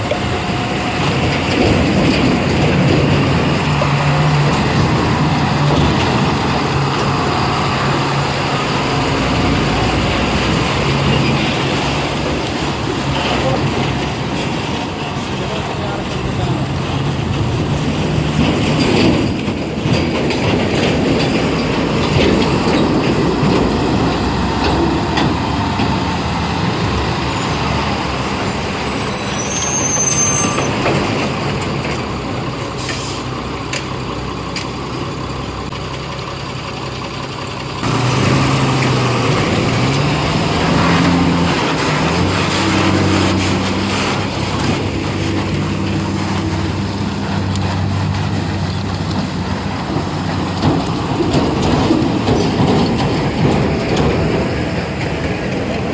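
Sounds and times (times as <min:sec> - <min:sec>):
truck diesel engines running: 0:00.0 - 0:55.9
truck engine revving: 0:00.0 - 0:55.9
high squeaks: 0:26.6 - 0:31.6.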